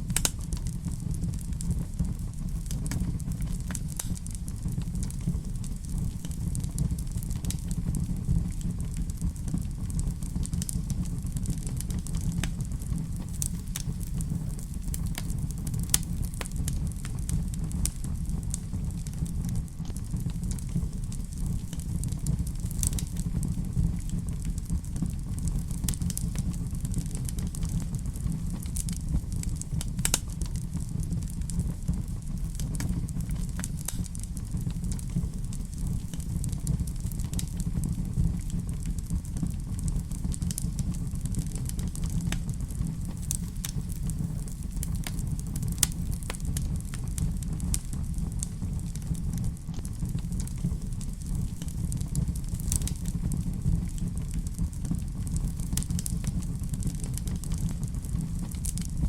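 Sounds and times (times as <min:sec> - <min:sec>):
fire pops and snaps: 0:00.0 - 0:59.0
low rumble of flames: 0:00.0 - 0:59.0.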